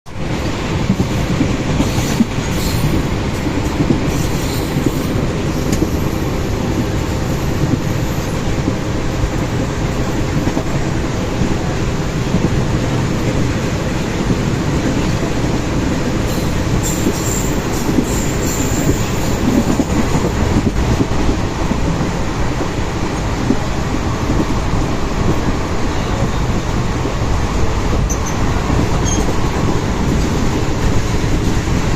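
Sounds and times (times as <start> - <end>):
freight train rumbling on rails: 0.1 - 31.9
train wheels clattering: 0.8 - 22.8
high wheel squeal: 16.4 - 19.4, 29.0 - 29.4.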